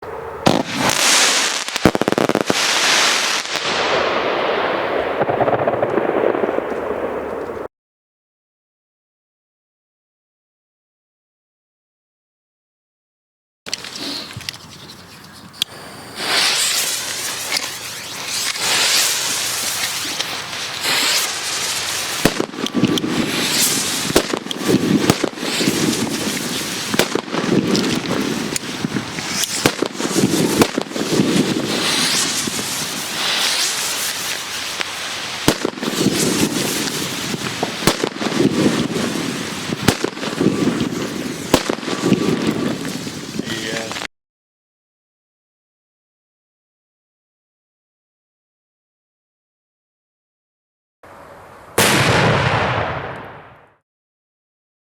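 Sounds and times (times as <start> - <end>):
firecracker bangs: 0.4 - 7.6, 16.2 - 43.1, 51.8 - 53.8
firecracker fizzing hiss: 0.5 - 5.8, 13.8 - 43.9.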